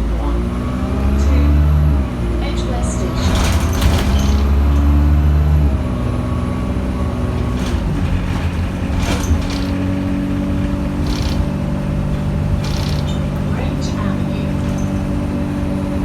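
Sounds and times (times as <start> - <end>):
bus engine droning: 0.0 - 16.0
knocks and rattles: 3.1 - 5.2, 6.6 - 15.9.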